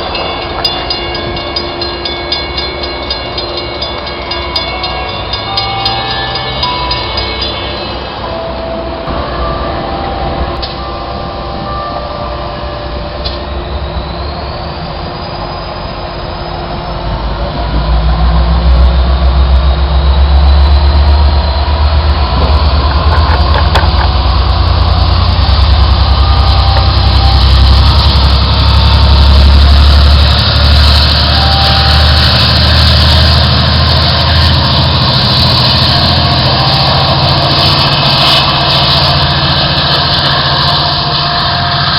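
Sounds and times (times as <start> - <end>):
thin rising squeal: 0.0 - 41.9
train rail noise: 0.0 - 41.9
deep diesel engine rumble: 8.8 - 41.9.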